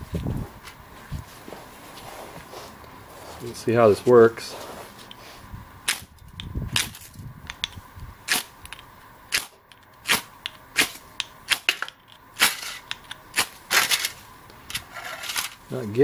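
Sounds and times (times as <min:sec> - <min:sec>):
ferro rod scraping: 0:12.4 - 0:15.6.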